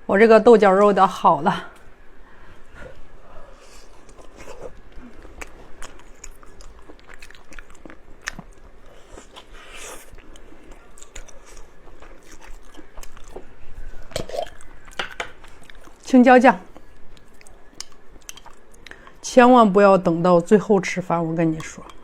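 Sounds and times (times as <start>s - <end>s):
biting and chewing food: 2.9s - 16.1s, 16.7s - 19.2s.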